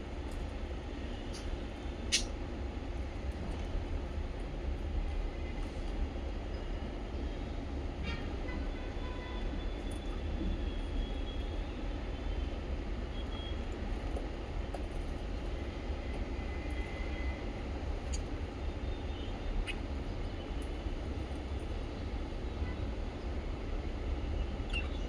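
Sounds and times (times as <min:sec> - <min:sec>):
faint bird chirps: 0:18.9 - 0:20.6, 0:24.4 - 0:25.0.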